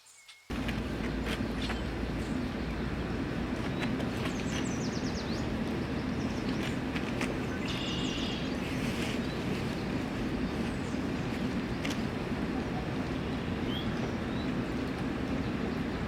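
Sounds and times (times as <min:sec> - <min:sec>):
steady low rumble: 0:00.5 - 0:16.0
high bird chirps: 0:07.5 - 0:08.6.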